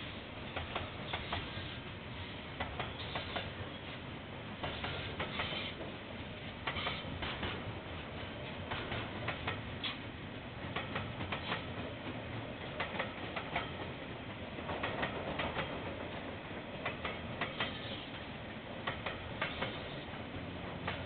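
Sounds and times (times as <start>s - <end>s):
train rumbling: 0.0s - 21.0s
wheels clicking over rail joints: 2.6s - 3.9s, 6.6s - 21.0s.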